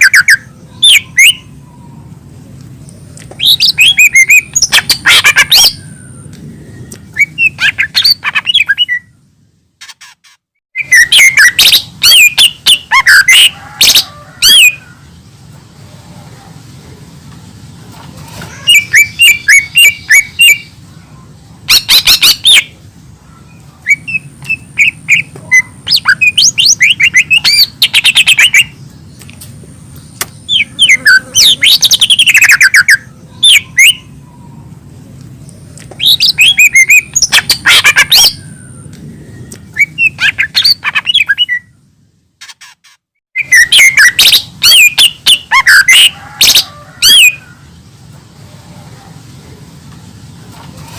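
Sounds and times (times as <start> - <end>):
bird chirps and trills: 0.0 - 15.5, 18.4 - 48.0
low steady hum: 8.7 - 9.8.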